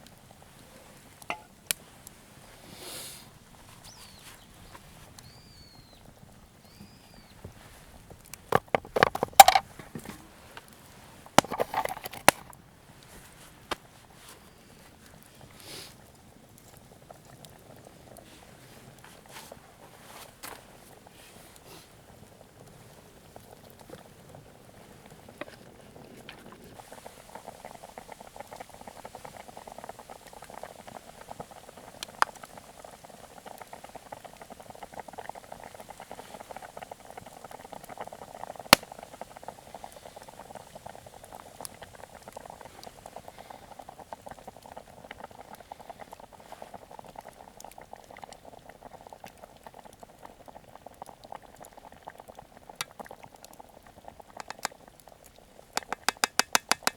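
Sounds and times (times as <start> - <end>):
pot of liquid boiling: 0.0 - 56.9
sharp clicks: 55.8 - 56.9.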